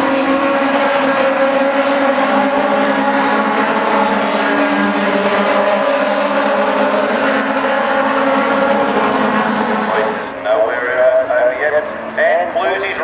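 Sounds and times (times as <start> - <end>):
racing car engines at high revs: 0.0 - 10.4.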